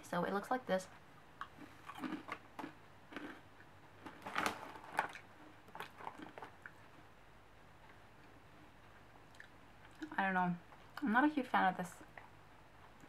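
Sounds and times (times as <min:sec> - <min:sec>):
person crunching crisp snack: 0:01.6 - 0:06.8.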